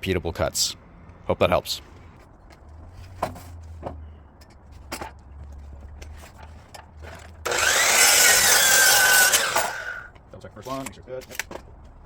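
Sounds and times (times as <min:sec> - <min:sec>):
miter saw cutting wood: 0:07.4 - 0:10.1.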